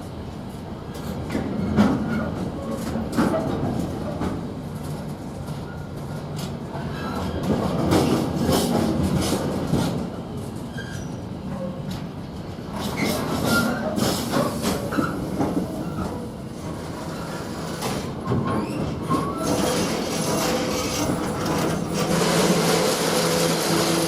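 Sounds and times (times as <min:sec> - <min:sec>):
freight train wagons rolling: 0:00.0 - 0:24.0
train wheel squeals: 0:10.7 - 0:11.8, 0:12.8 - 0:16.2, 0:16.9 - 0:24.0
wheels clattering over rail joints: 0:12.7 - 0:24.0.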